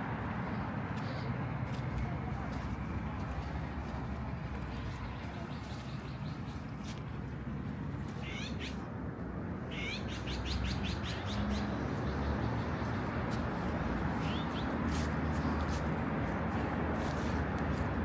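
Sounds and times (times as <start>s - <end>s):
low rumble of city background: 0.0s - 18.0s
high-pitched animal calls: 8.2s - 8.8s, 9.7s - 10.8s.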